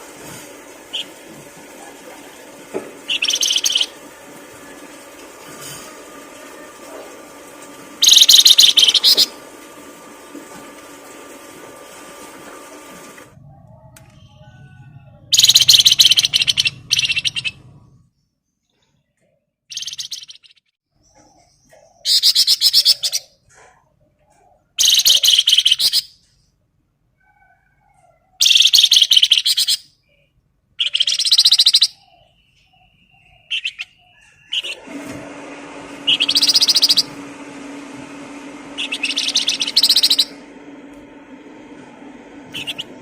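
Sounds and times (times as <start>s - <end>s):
songbird chattering trills: 3.1s - 4.0s, 8.0s - 9.3s, 15.3s - 17.6s, 36.1s - 37.1s, 38.8s - 40.3s.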